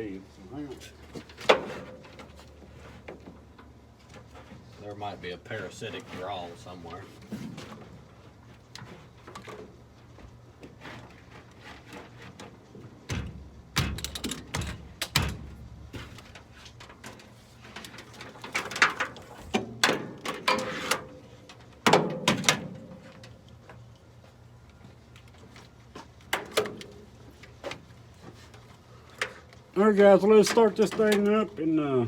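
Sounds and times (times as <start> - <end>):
tool clicks knocks and clanks: 13.1 - 16.4.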